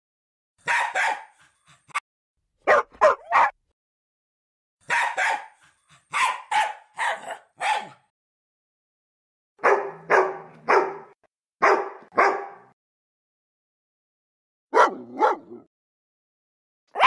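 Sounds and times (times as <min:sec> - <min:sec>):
dog barking: 0:00.6 - 0:01.5, 0:02.6 - 0:03.6, 0:04.8 - 0:08.1, 0:09.6 - 0:12.8, 0:14.7 - 0:15.7.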